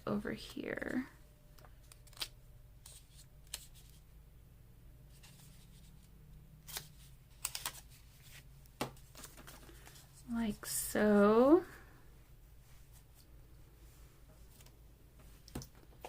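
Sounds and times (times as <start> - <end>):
low steady hum: 0.0 - 16.0
paper clicks and rustles: 6.6 - 8.4, 9.0 - 10.0.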